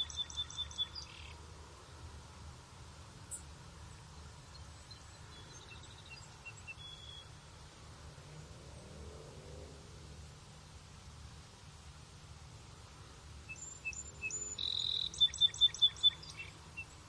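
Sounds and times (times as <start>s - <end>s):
small birds chirping: 0.0s - 1.4s, 13.5s - 17.0s.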